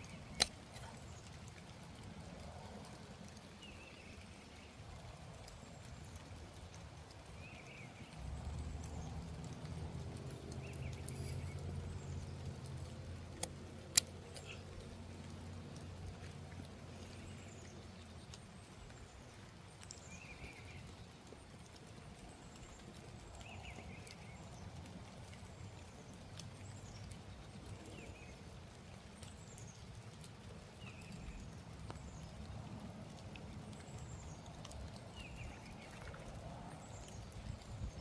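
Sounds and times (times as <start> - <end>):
faint sharp clicks: 0.0 - 38.0
birds chirping: 10.3 - 15.2.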